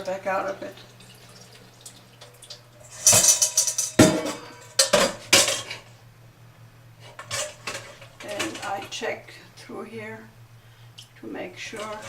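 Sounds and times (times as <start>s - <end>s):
bowl clattering: 0.4s - 5.9s, 11.7s - 12.0s.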